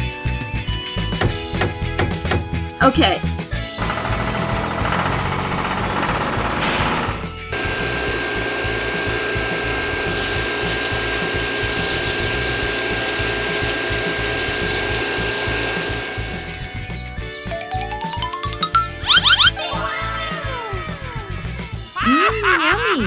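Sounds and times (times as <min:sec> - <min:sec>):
small machine grinding and whining: 0:03.6 - 0:16.9.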